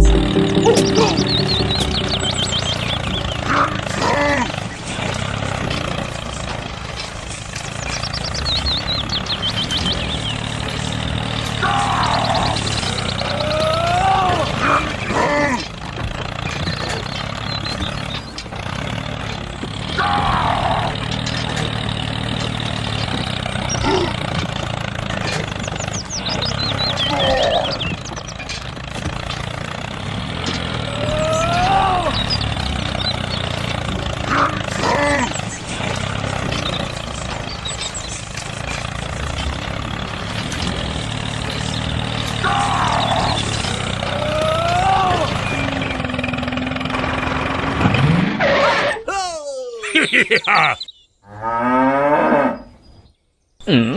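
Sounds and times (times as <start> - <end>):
high chirps: 0.0 - 3.6
miniature tractor engine drone: 0.0 - 48.4
high arching calls: 49.2 - 51.2.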